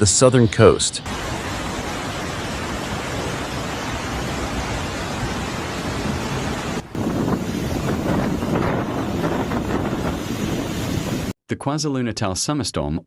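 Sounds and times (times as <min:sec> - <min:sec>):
floodwater rushing: 0:01.0 - 0:11.3
wind buffeting microphone: 0:05.2 - 0:11.3.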